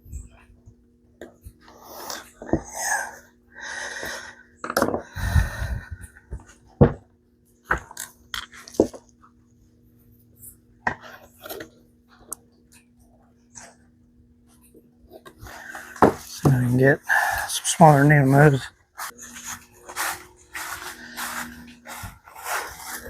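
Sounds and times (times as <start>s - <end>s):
scuffing and rubbing of hands: 19.0s - 23.0s.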